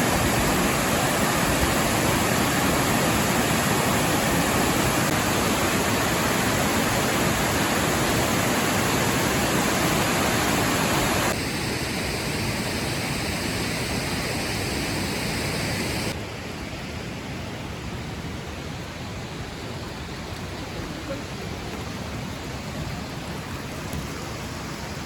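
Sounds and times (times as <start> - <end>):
waterfall rushing: 0.0 - 16.2.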